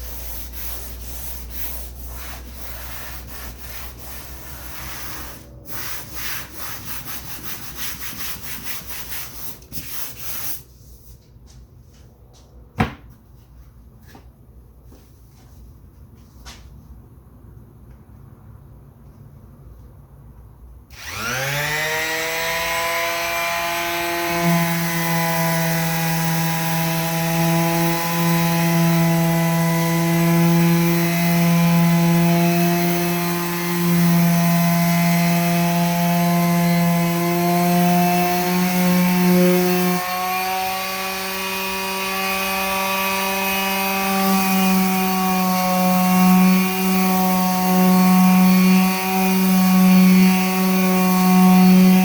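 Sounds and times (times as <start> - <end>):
electric power tool motor running: 20.9 - 24.8.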